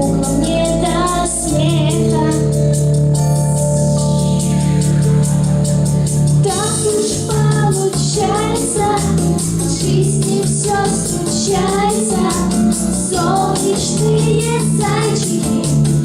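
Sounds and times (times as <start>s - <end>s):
instrumental accompaniment with beat: 0.0s - 16.0s
young voices singing: 6.4s - 16.0s.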